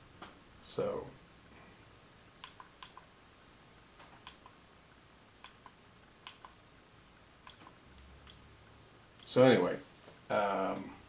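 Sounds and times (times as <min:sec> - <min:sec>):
faint click wheel clicks: 0:02.4 - 0:03.1, 0:04.2 - 0:04.6, 0:05.4 - 0:06.6, 0:07.4 - 0:08.4.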